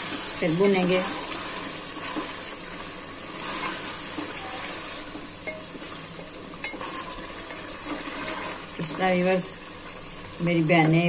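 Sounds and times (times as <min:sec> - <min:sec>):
chicken sizzling in oil: 0:00.0 - 0:11.0
spatula scraping a pot: 0:03.2 - 0:09.0.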